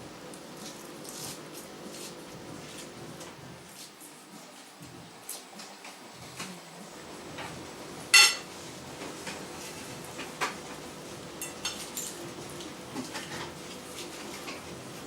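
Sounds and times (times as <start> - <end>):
cutlery clinking against bowl: 8.1 - 8.5, 11.4 - 12.2, 13.0 - 14.6.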